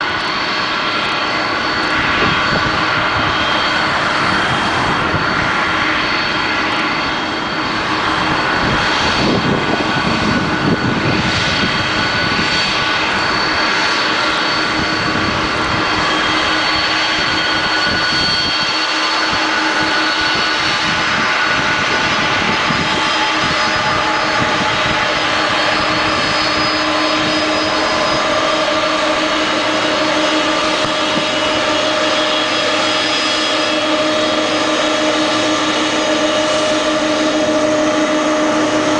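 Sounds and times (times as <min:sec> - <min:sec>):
high whining tones: 0:00.0 - 0:38.9
jet engines running: 0:00.0 - 0:38.9.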